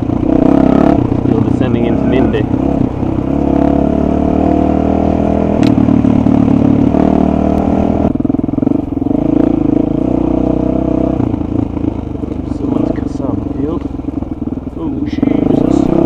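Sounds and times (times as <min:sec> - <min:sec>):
dirt bike engine revving: 0:00.0 - 0:16.0
sharp click: 0:05.6 - 0:05.8.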